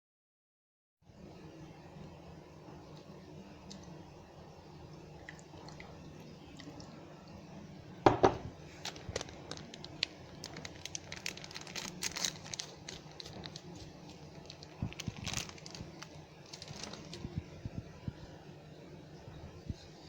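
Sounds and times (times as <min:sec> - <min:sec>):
loud knock: 0:08.1 - 0:08.5
crinkly material rustling: 0:08.6 - 0:17.9.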